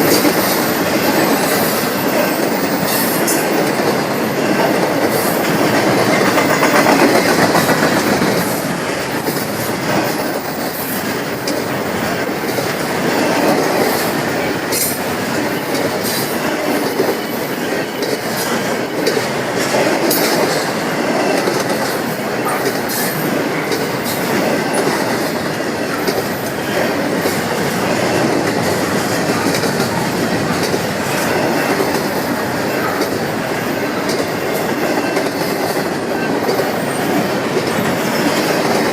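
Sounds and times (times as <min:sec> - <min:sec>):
freight train wheels rumbling: 0:00.0 - 0:38.9
wheels clicking over rail joints: 0:14.7 - 0:38.9.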